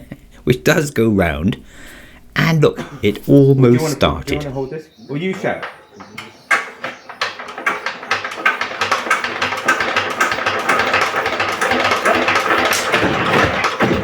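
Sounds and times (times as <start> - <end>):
diesel engine cranked by hand: 5.4 - 14.0.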